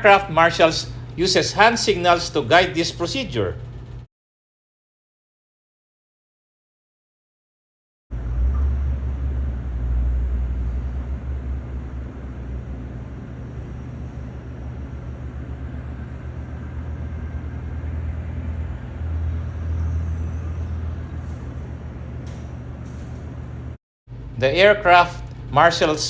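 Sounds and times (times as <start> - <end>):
airliner engine drone: 0.0 - 3.9, 8.1 - 26.0
deep hum: 8.1 - 26.0.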